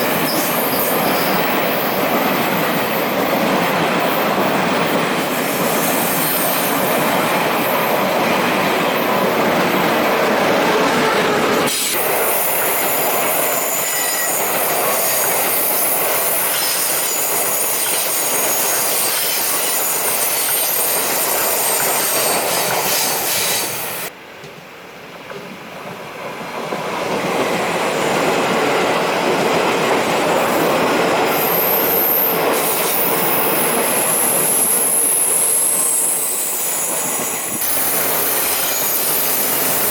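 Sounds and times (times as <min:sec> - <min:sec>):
train wheels rumbling on track: 0:00.0 - 0:39.9
high-pitched wheel squeal: 0:10.6 - 0:23.8, 0:31.3 - 0:39.9.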